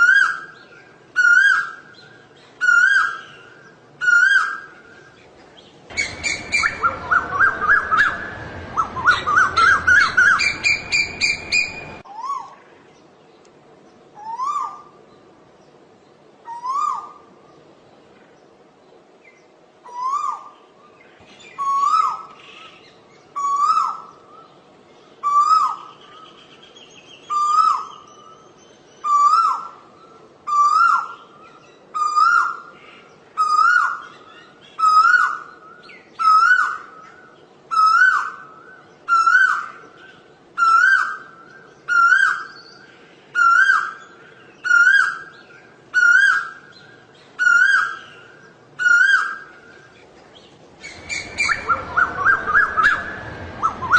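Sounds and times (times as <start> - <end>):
bird calling loudly: 0.0 - 5.2, 5.9 - 12.6, 21.3 - 24.6, 27.2 - 53.9.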